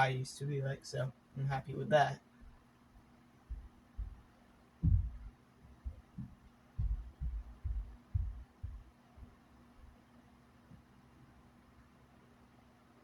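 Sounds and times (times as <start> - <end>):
box fan motor hum: 0.0 - 13.0
airflow buffeting microphone: 4.8 - 8.9.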